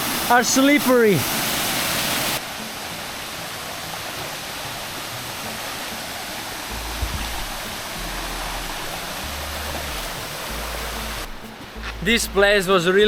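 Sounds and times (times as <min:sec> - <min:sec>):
waterfall rushing: 0:00.0 - 0:13.0
low rumble: 0:06.7 - 0:11.4.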